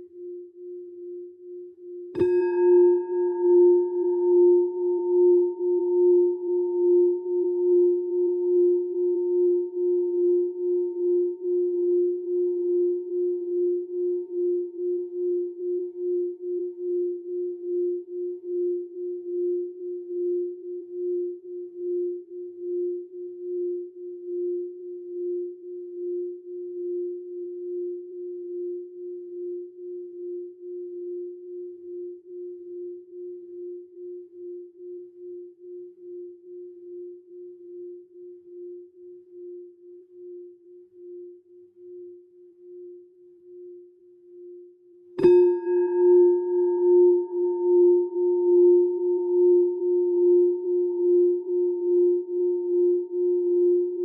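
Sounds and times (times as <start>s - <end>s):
singing bowl low wavering tone: 0.0s - 54.0s
singing bowl strike: 2.1s - 8.2s, 45.2s - 52.4s.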